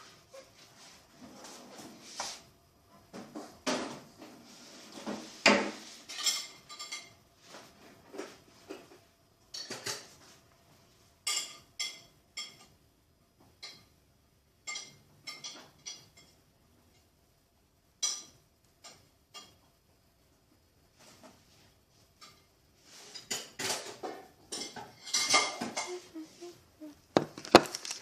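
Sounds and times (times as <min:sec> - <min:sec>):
utensils clinking against dishes: 0:05.6 - 0:07.2, 0:11.2 - 0:12.8, 0:14.6 - 0:16.4, 0:22.2 - 0:26.5.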